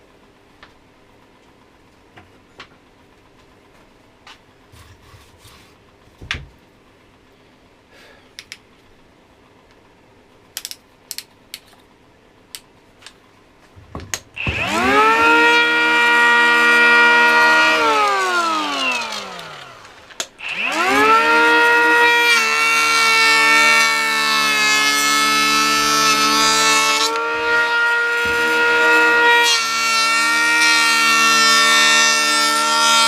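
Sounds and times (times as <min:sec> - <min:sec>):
cordless planer motor whining: 0:14.4 - 0:33.0.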